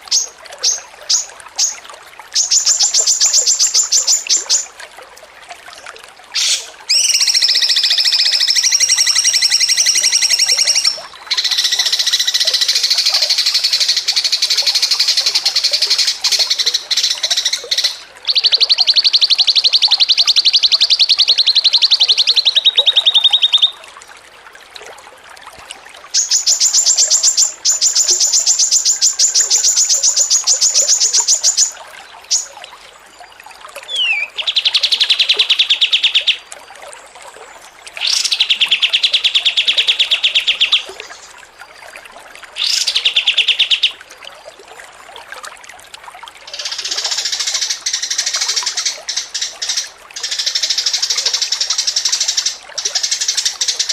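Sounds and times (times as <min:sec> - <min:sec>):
songbird buzzy trills: 0:00.0 - 0:04.7, 0:06.4 - 0:23.9, 0:26.2 - 0:36.5.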